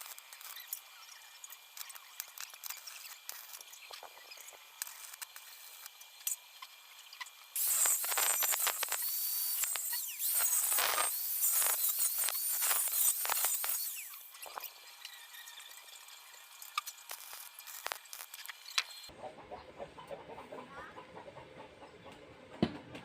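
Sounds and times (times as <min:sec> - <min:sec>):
welding arc crackling and hissing: 0:00.0 - 0:14.9, 0:15.6 - 0:19.1.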